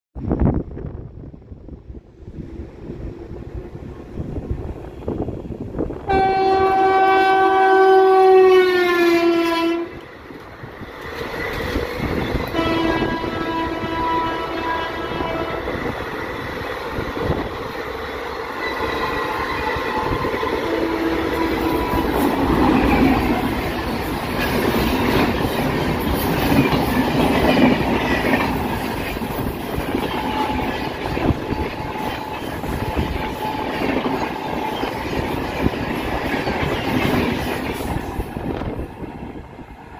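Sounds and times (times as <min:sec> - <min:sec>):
train coaches clattering: 0:03.3 - 0:39.9
locomotive horn blasts: 0:06.1 - 0:10.0, 0:12.5 - 0:15.8, 0:20.0 - 0:22.2.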